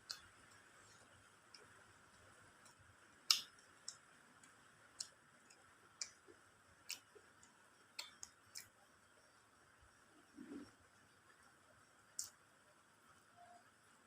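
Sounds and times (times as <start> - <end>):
eating clicks and smacks: 0.0 - 0.7, 1.4 - 8.8, 12.1 - 12.4
faint steady hiss: 0.0 - 14.0.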